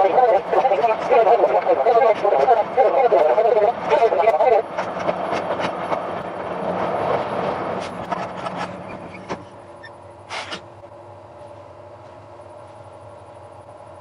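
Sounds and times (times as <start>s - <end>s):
standing train humming: 0.0s - 14.0s
train wheels on rails: 0.0s - 14.0s.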